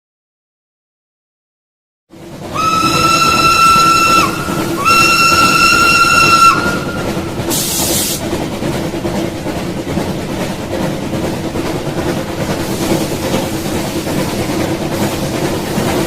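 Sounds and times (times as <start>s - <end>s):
train rumbling: 2.1s - 16.0s
train whistle blasts: 2.5s - 7.8s.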